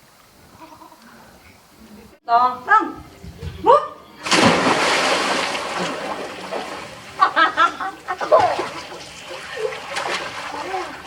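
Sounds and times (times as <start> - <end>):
big splash into pool: 4.2 - 7.5
water sloshing: 4.2 - 11.0.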